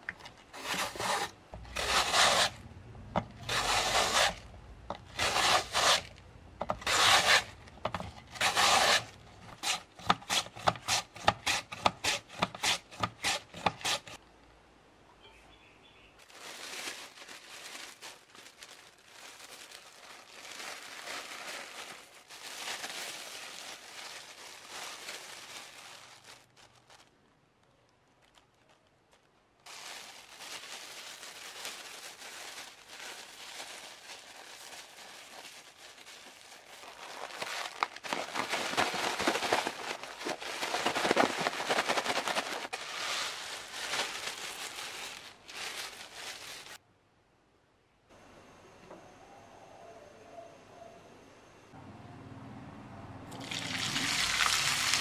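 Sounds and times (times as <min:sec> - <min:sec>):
plastic bag crinkling: 0:00.0 - 0:02.6, 0:03.3 - 0:11.3, 0:16.2 - 0:46.8, 0:53.4 - 0:55.0.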